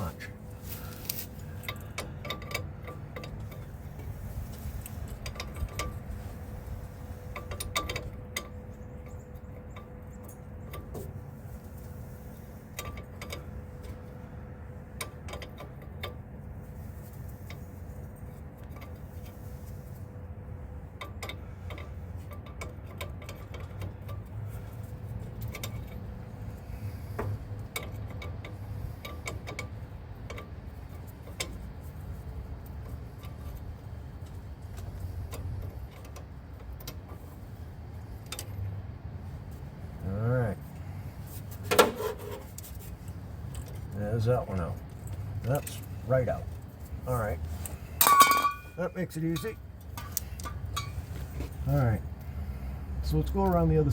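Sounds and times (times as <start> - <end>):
steady low rumble: 0.0 - 41.8, 42.4 - 53.9
metallic clicks of hand wrenches: 1.1 - 4.1, 7.3 - 11.0, 14.9 - 16.2, 21.0 - 31.7, 32.6 - 37.2, 41.5 - 52.3.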